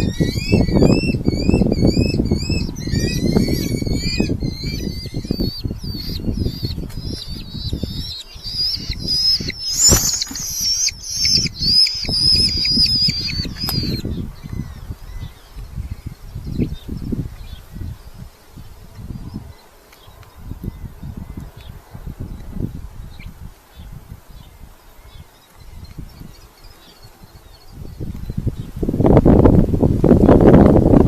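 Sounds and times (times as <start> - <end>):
falcons calling: 0.0 - 15.6.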